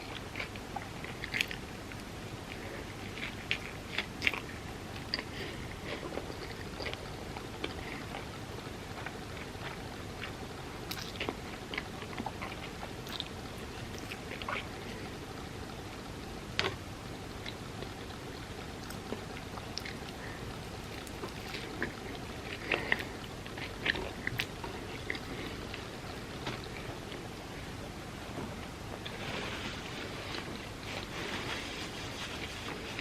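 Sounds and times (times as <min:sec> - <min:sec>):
background hiss: 0:00.0 - 0:33.0
chewing crispy food: 0:00.0 - 0:33.0.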